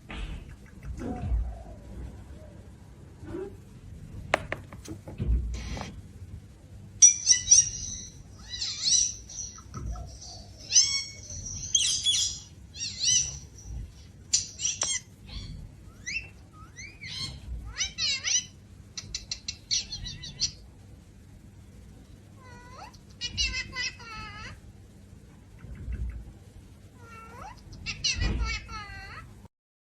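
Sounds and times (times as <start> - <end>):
bird chirps and squawks: 7.0 - 20.6, 22.6 - 24.3, 27.0 - 29.0.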